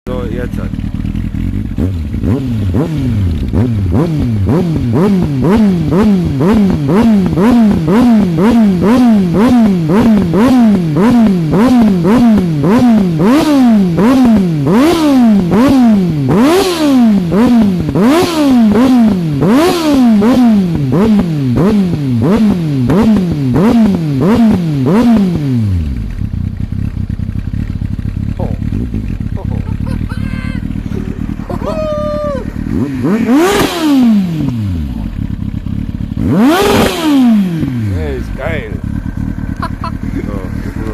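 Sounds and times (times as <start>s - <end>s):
motorcycle engine revving: 0.1s - 40.9s
exhaust pops crackling: 26.0s - 31.6s, 32.6s - 40.9s.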